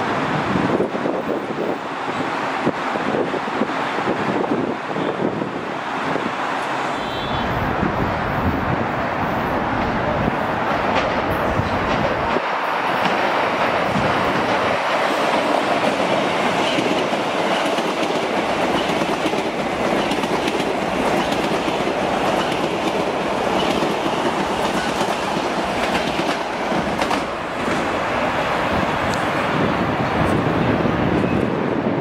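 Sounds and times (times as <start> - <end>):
train wheel and rail noise: 0.0 - 32.0
wheels clicking over rail joints: 10.7 - 27.9.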